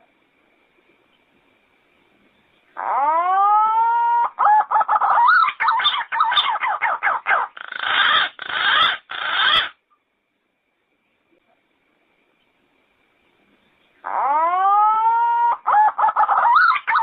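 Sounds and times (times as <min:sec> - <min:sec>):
pigeon whistling song: 0:14.1 - 0:17.0.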